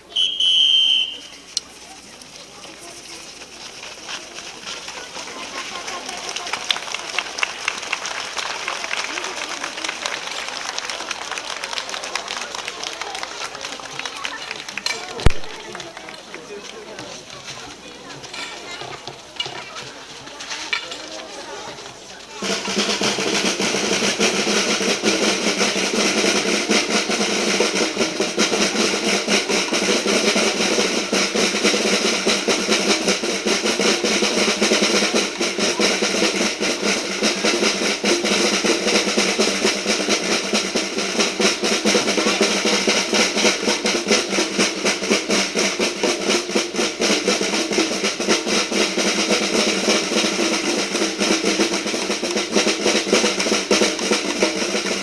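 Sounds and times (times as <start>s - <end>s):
snare drums beating: 0.0s - 9.3s, 14.8s - 15.9s, 22.4s - 55.0s
marching band playing: 0.0s - 13.5s, 21.7s - 55.0s.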